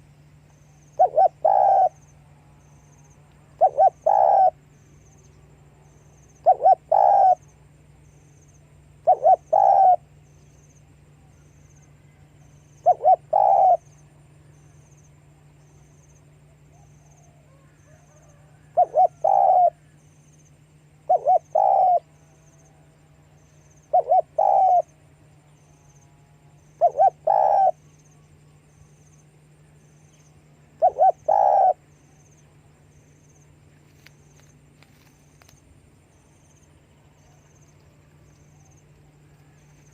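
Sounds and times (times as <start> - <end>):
dove cooing: 0.8 - 2.1, 3.4 - 4.7, 6.3 - 7.6, 9.0 - 10.2, 12.0 - 14.0, 16.5 - 20.0, 21.0 - 22.9, 23.6 - 25.0, 26.6 - 28.2, 30.7 - 32.3.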